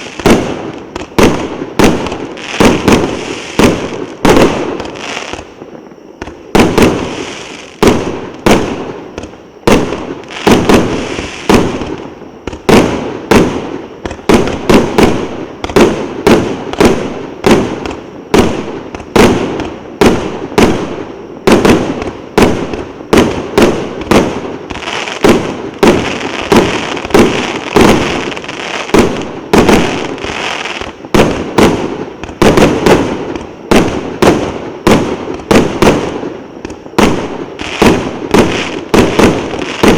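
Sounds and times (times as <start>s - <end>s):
firework crackle: 0.0s - 39.9s
firework cake bangs: 12.6s - 36.3s, 36.9s - 39.9s.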